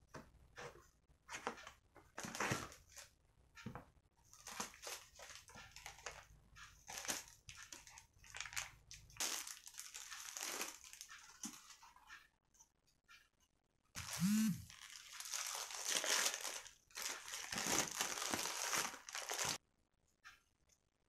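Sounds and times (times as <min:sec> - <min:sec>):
paper packaging crinkling: 0:04.3 - 0:11.8, 0:14.0 - 0:19.6.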